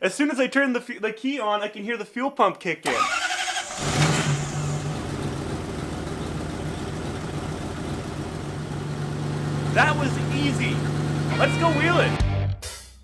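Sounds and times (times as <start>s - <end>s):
truck engine starting and idling: 2.8s - 12.2s.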